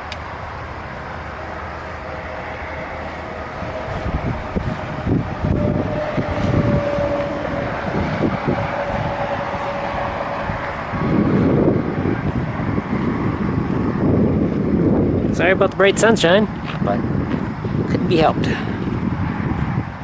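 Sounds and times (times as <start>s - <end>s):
crane engine running: 0.0s - 15.8s
steady whine: 0.0s - 20.0s
wind buffeting microphone: 0.0s - 20.0s.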